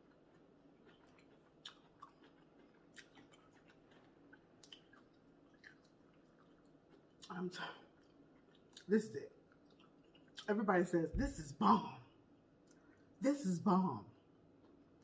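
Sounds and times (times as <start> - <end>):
faint chewing: 0.0 - 10.6, 12.1 - 13.2, 14.2 - 15.0
soft mouth clicks: 3.0 - 6.0.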